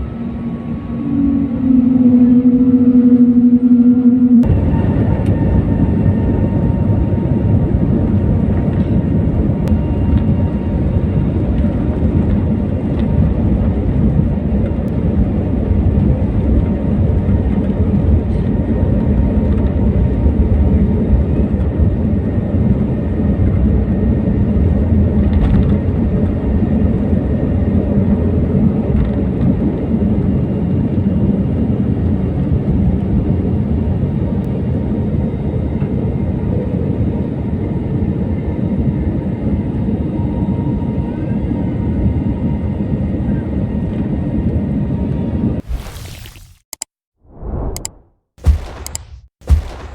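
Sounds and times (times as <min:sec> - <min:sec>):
faint high whine: 0:00.0 - 0:07.1
jet engines rumbling: 0:00.0 - 0:25.0, 0:47.3 - 0:49.9.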